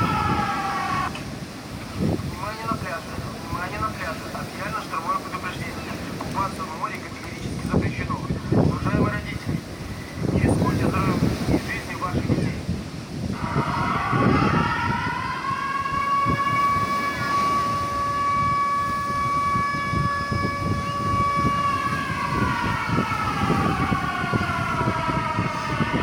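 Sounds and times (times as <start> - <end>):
siren wailing: 0.0 - 7.5, 13.3 - 26.0
surf: 0.0 - 25.8
wind: 0.0 - 26.0.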